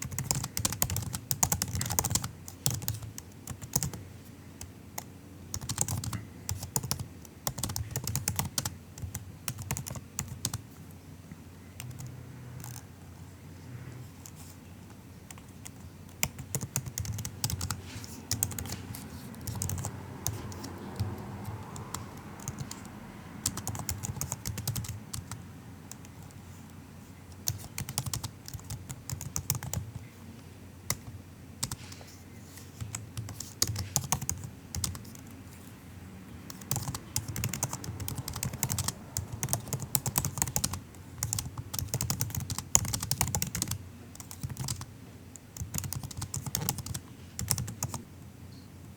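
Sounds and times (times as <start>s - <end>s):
laptop keyboard typing: 0.0s - 10.8s, 11.8s - 13.2s, 15.2s - 26.5s, 27.2s - 30.1s, 30.9s - 35.4s, 36.4s - 48.1s.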